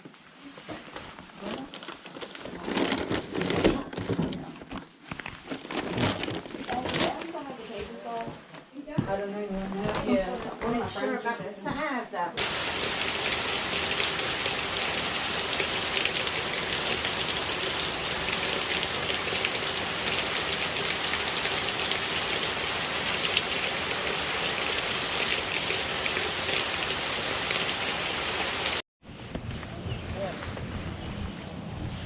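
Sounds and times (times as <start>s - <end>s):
steady rain falling: 12.4s - 28.8s.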